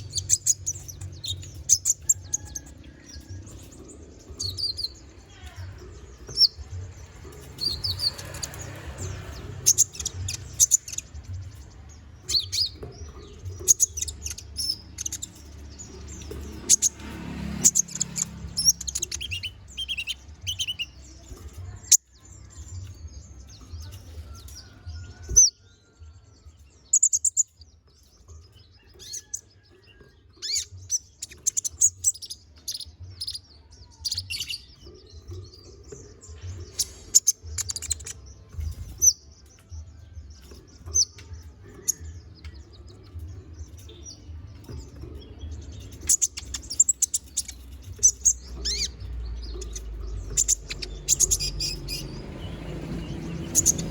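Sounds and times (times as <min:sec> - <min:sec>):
bird chirping and twittering: 0:00.0 - 0:53.9.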